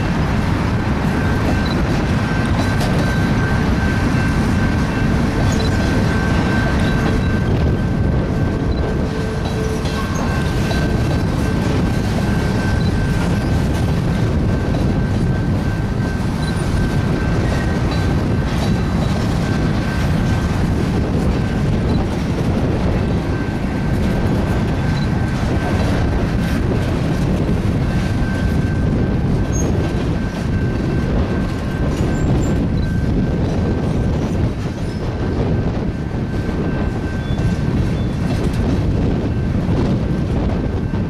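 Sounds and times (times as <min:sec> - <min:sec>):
freight train wheels rumbling: 0:00.0 - 0:41.0
high wheel squeal: 0:01.2 - 0:13.8, 0:27.9 - 0:38.3.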